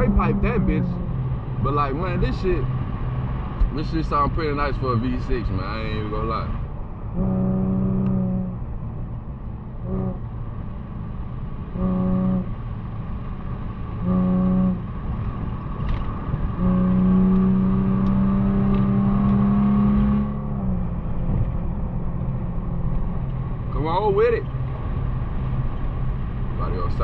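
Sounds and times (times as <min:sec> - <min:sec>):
car exhaust drone: 0:00.0 - 0:27.0.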